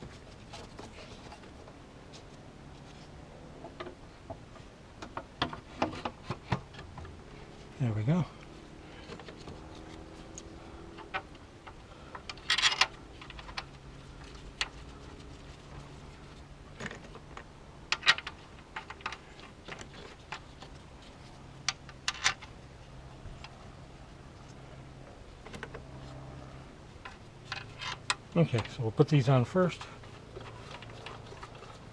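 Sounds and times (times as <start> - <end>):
steady low hum: 0.0 - 31.9
clicks of tools and engine parts: 8.4 - 14.8, 16.8 - 22.6, 25.4 - 25.9, 27.0 - 28.9.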